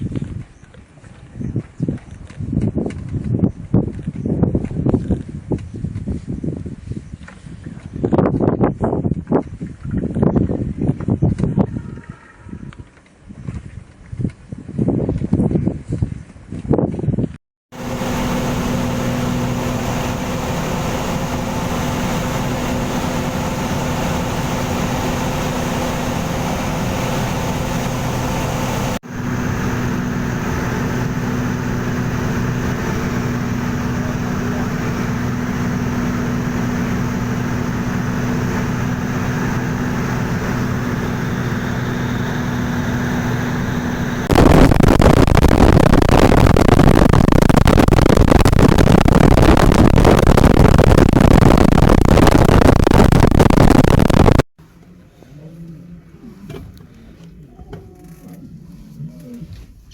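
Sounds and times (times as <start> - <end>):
even rushing noise: 17.7 - 54.5
vehicle engine humming: 17.7 - 54.5.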